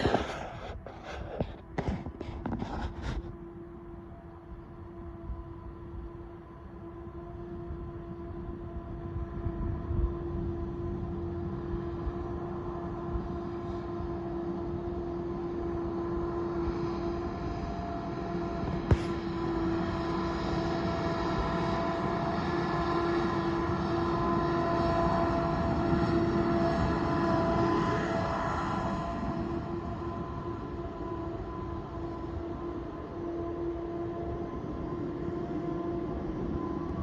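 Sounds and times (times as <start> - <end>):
tractor engine running: 0.0 - 5.2, 17.2 - 27.0.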